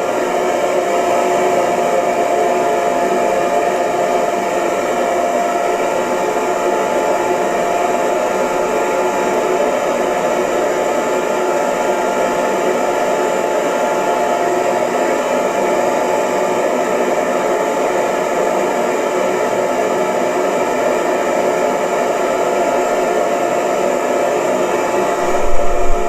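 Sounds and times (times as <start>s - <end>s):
hair dryer blowing: 0.0s - 26.0s.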